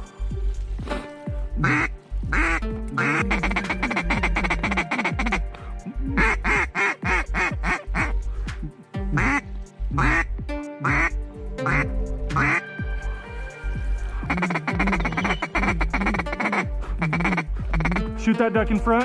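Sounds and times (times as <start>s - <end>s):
background music with steady beat: 0.0s - 19.0s
duck quacking: 1.6s - 9.4s, 10.0s - 12.6s, 14.3s - 18.1s.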